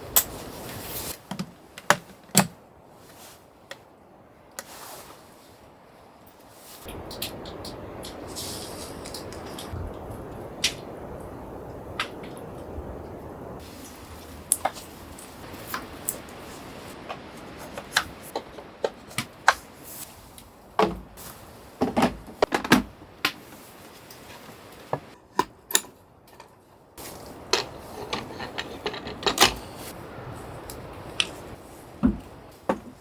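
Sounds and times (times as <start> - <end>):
objects being handled: 14.5 - 30.0.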